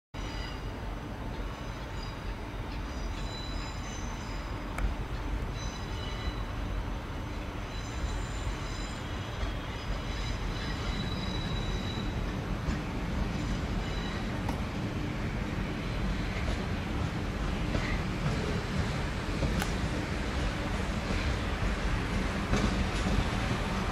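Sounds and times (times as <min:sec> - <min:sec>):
train wheels rumbling on track: 0:00.2 - 0:23.9
high-pitched wheel squeal: 0:02.9 - 0:04.6, 0:05.5 - 0:06.5, 0:07.3 - 0:12.4, 0:13.3 - 0:14.4.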